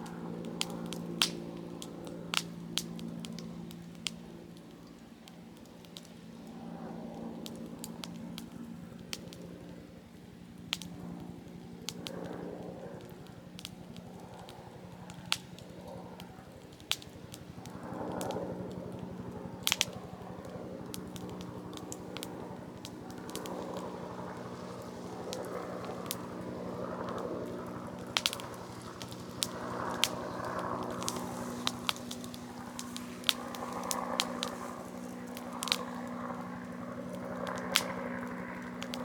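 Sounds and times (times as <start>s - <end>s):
campfire crackling and popping: 0.0s - 9.8s, 10.5s - 39.0s
low background drone: 16.1s - 39.0s
wind gusts: 22.3s - 39.0s.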